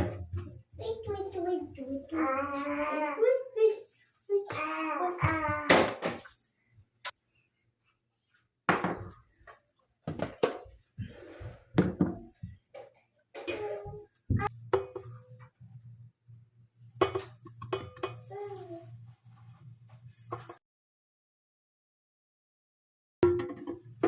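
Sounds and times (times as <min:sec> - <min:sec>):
dishes clinking: 0:13.4 - 0:14.0, 0:17.0 - 0:18.3.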